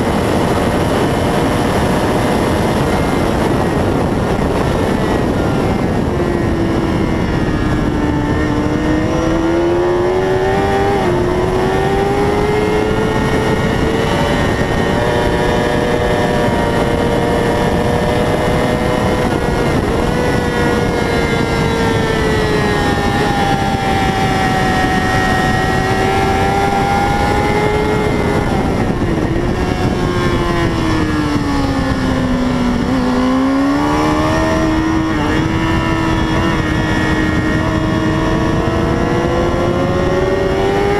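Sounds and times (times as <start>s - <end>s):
racing motorcycle engine revving: 0.0s - 40.9s
wind noise: 0.0s - 40.9s.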